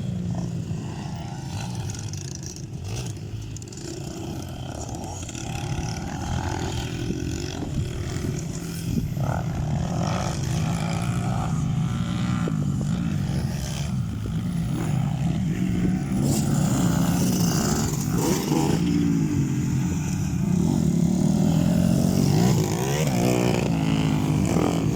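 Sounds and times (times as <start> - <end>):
dirt bike engines revving: 0.0 - 24.9.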